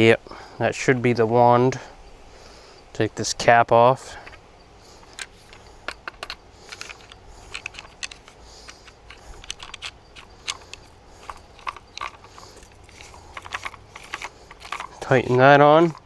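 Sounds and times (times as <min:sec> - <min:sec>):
plastic and metal parts clicking: 0:04.0 - 0:04.4, 0:05.0 - 0:16.0.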